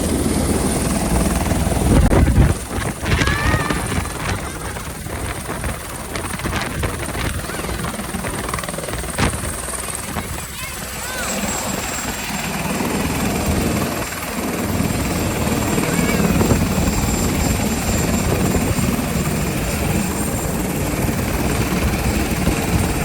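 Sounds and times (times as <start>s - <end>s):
helicopter rotor fluttering: 0.0s - 23.0s.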